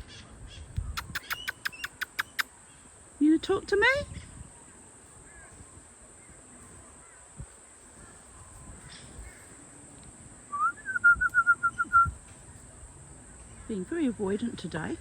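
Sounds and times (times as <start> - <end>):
bird calling: 0.0 - 2.8, 10.5 - 12.3.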